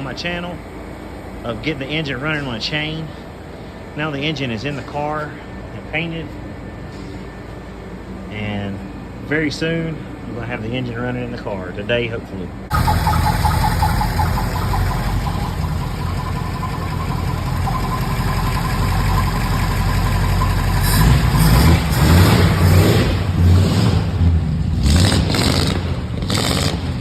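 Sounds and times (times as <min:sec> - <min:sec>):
car engine idling and revving: 0:12.7 - 0:27.0.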